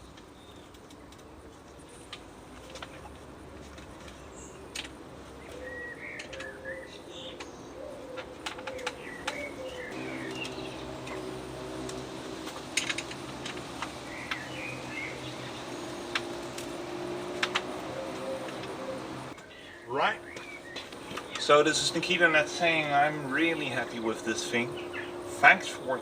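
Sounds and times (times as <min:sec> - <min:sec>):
birds chirping and calling: 0:05.4 - 0:26.0
steady low hum: 0:09.1 - 0:26.0
sharp clicks and knocks: 0:10.2 - 0:19.4.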